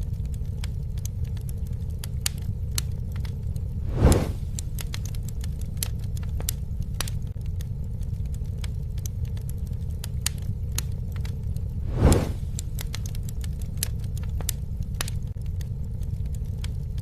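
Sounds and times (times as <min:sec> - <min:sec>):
campfire flames rumbling: 0:00.0 - 0:17.0
fire crackling and popping: 0:00.0 - 0:17.0.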